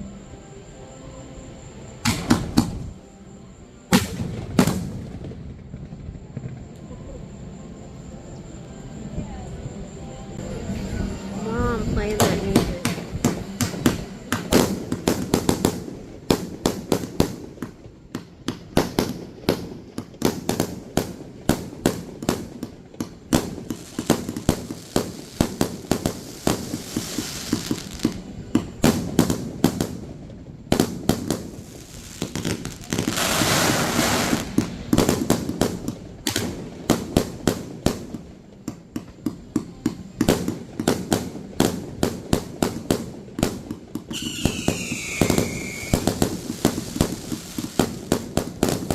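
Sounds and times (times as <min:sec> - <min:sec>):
fireworks bangs: 0:02.0 - 0:03.0, 0:03.9 - 0:06.7, 0:11.9 - 0:48.9
fireworks hissing: 0:10.3 - 0:48.9.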